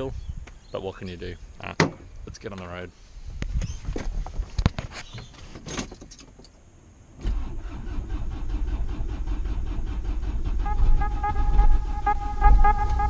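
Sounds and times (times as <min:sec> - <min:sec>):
van engine starter cranking: 0:07.2 - 0:13.0
steady high tone: 0:10.7 - 0:13.0.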